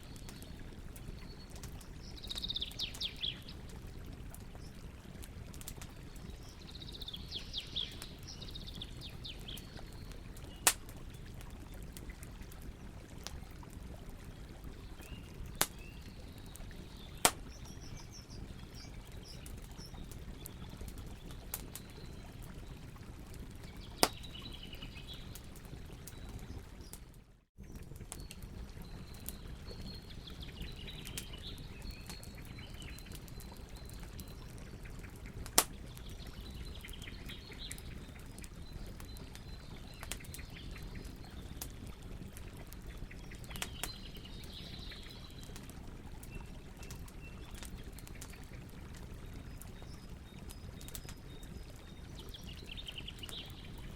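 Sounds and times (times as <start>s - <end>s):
campfire burning: 0.0s - 53.9s
small birds chirping: 0.0s - 53.9s
wood crackling pops: 10.5s - 11.5s, 15.5s - 15.8s, 17.2s - 17.7s, 24.0s - 24.2s, 35.4s - 35.8s.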